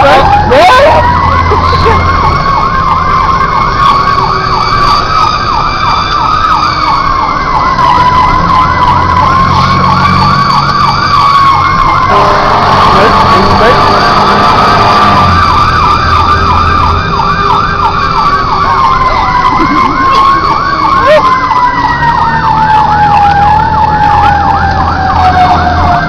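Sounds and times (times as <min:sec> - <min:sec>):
electronic siren yelp: 0:00.0 - 0:26.0
siren wailing: 0:00.0 - 0:26.0.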